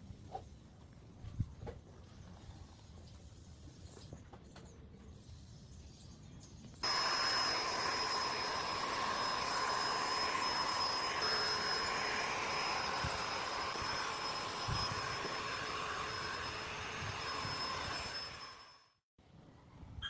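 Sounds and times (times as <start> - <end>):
power tool motor whining: 6.8 - 18.9.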